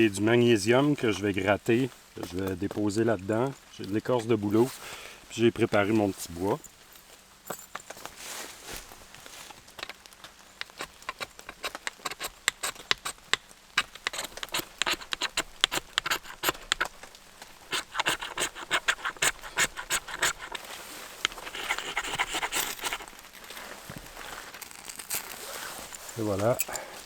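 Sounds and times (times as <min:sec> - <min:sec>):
fire-starter block being scraped: 0:10.6 - 0:27.0.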